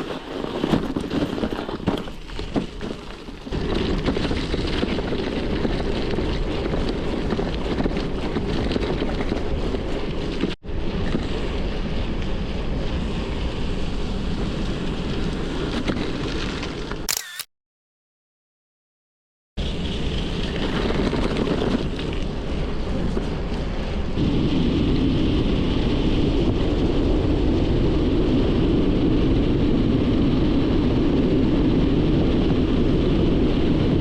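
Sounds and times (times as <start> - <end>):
tyre and road rumble: 0.0 - 17.0
wind buffeting microphone: 0.0 - 17.0, 19.6 - 34.0.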